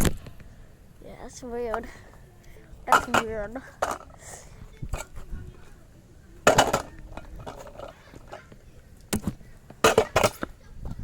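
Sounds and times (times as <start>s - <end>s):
skateboard deck clacking on pavement: 6.4s - 10.6s.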